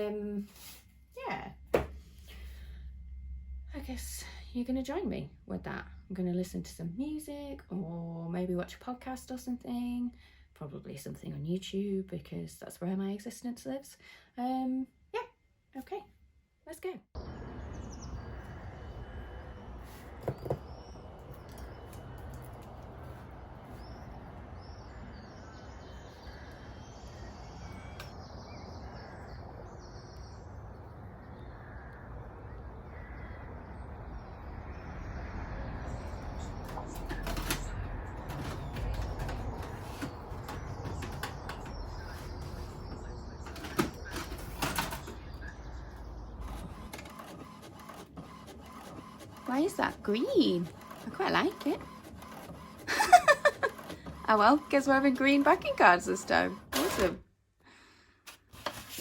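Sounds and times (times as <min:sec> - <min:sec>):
birds chirping: 0:17.2 - 0:57.2.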